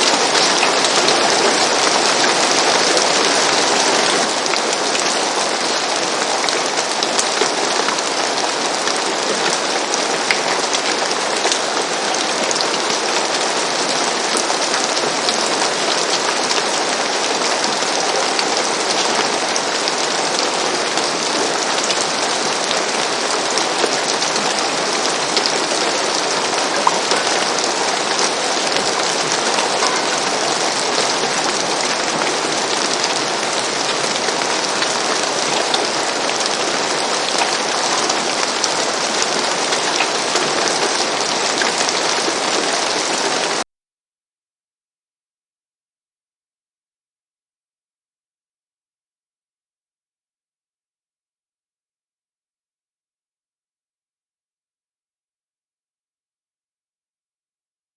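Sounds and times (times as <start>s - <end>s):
rain on a roof: 0.0s - 43.7s.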